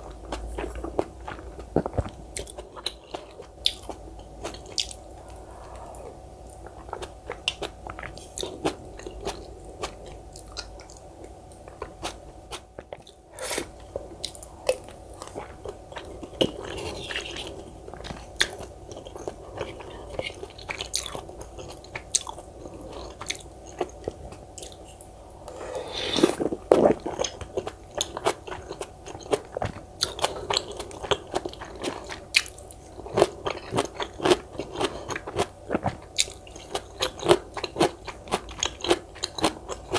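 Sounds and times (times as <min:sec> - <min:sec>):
person chewing and biting: 0:00.0 - 0:24.9.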